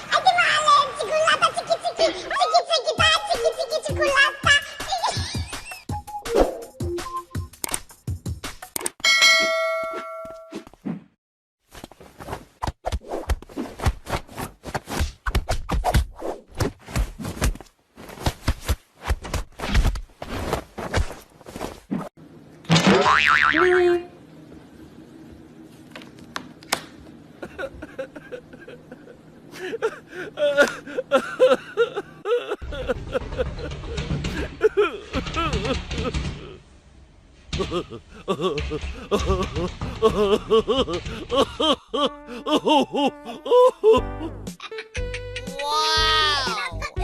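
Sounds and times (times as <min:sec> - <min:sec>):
metallic ding ringing: 0:09.0 - 0:10.5
baby giggling: 0:44.6 - 0:47.0.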